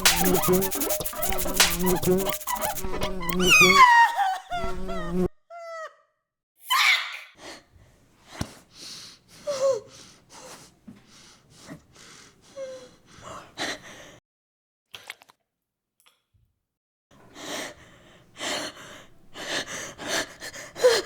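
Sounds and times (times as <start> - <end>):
voiced squeaks: 0.0 - 5.3.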